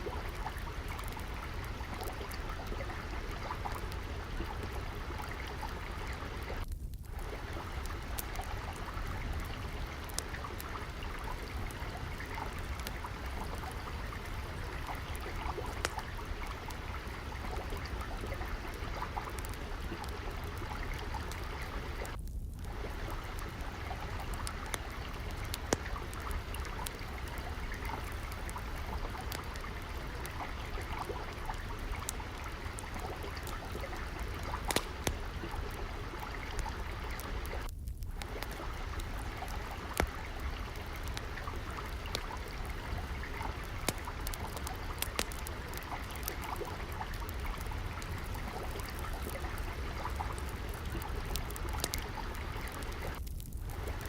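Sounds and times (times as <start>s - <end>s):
trickle of flowing water: 0.0s - 54.0s
wood fire crackling: 0.0s - 54.0s.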